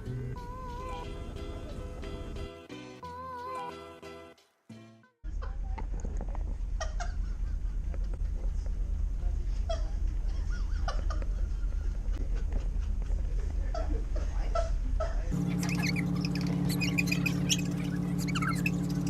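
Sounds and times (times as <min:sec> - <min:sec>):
boat engine rumbling: 0:00.0 - 0:02.5, 0:14.7 - 0:19.0.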